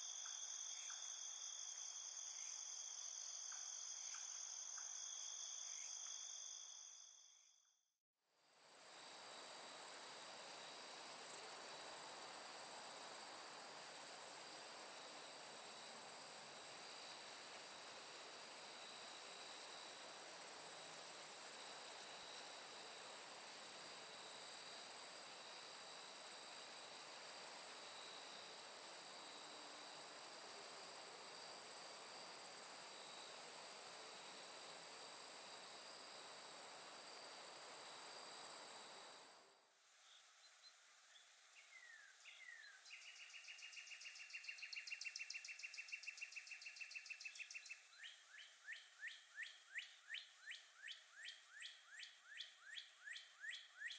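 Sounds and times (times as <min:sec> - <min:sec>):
insects trilling: 0:00.0 - 0:07.3, 0:08.7 - 0:40.2, 0:41.5 - 0:53.9
faint even hiss: 0:00.0 - 0:07.5, 0:08.4 - 0:53.9.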